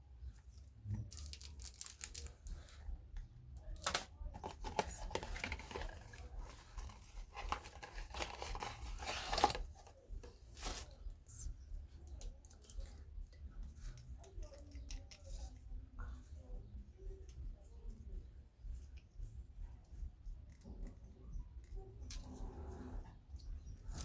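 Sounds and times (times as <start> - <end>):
packaging crinkling and tearing: 1.1 - 2.4, 3.8 - 9.9.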